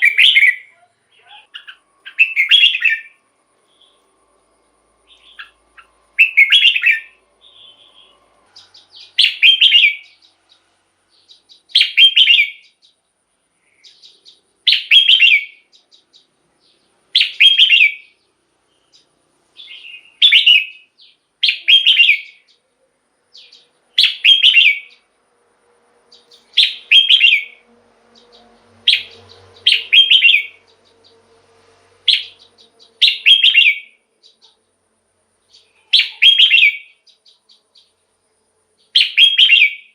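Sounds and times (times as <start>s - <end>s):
bird singing whistled phrases: 0.0s - 4.0s, 5.1s - 10.3s, 11.3s - 12.9s, 13.8s - 15.9s, 17.2s - 18.2s, 19.6s - 22.6s, 23.4s - 25.0s, 26.2s - 27.6s, 28.9s - 30.7s, 32.1s - 34.0s, 35.5s - 37.9s, 38.9s - 39.9s.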